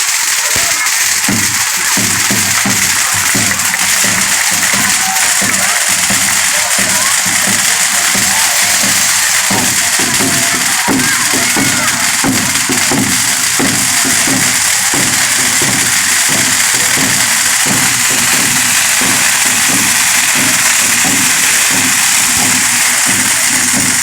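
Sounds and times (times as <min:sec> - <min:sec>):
drums striking rhythm: 0:00.0 - 0:24.0
shakers and tambourines rattling: 0:00.0 - 0:24.0.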